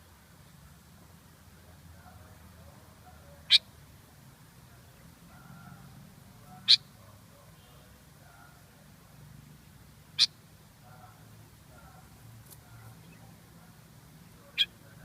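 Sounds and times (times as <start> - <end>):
bird giving sharp high calls: 3.4 - 3.7, 6.5 - 7.0, 10.1 - 10.4, 14.5 - 14.8.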